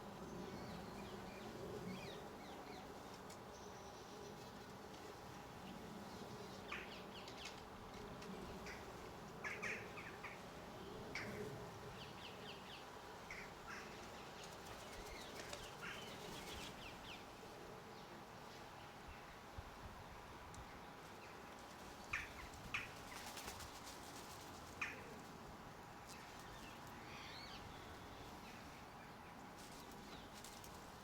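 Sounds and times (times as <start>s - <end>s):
small birds chirping: 11.0s - 17.4s.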